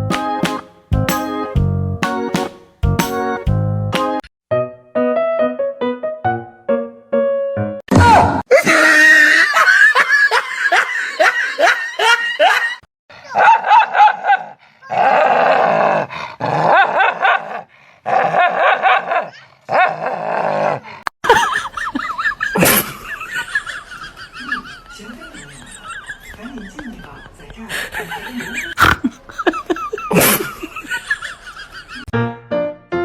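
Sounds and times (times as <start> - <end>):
dog barking and calling: 13.2 - 15.4, 16.7 - 20.0.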